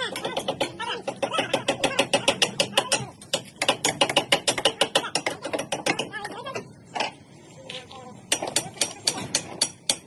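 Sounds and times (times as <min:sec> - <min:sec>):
hammers nailing timber: 0:00.0 - 0:06.2, 0:08.3 - 0:10.0.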